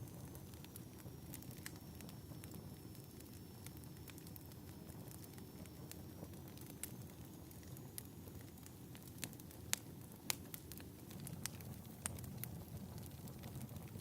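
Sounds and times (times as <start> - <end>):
fire burning in fireplace: 0.0 - 14.0
fire sharp pops: 3.7 - 14.0.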